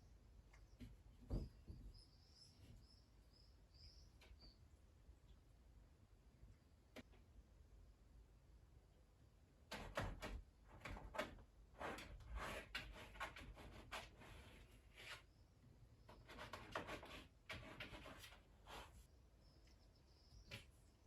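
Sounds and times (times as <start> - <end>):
rustling scraping and light knocks: 11.8 - 15.3, 16.1 - 19.1.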